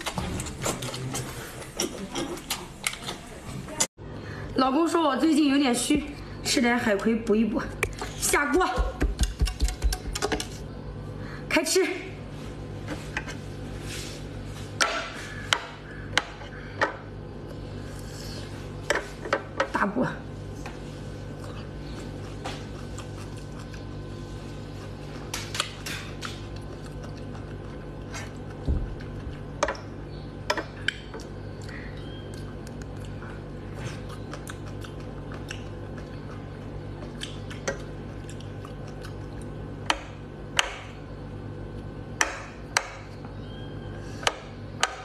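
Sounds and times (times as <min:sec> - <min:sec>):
steady low hum: 0:00.0 - 0:45.0
chewing and mouth sounds: 0:21.2 - 0:30.0, 0:30.7 - 0:39.8.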